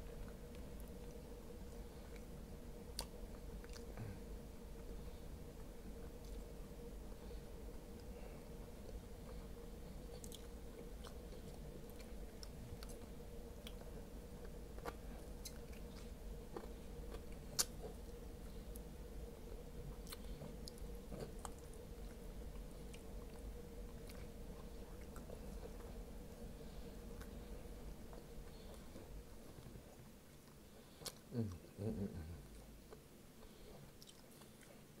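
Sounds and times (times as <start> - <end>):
faint steady hum: 0.0 - 35.0
person chewing: 8.8 - 18.9, 19.9 - 26.0, 27.2 - 31.7, 32.4 - 34.8.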